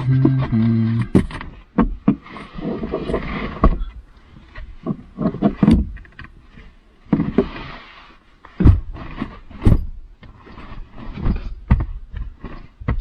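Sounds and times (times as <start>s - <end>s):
knocks and thumps: 8.6s - 10.0s.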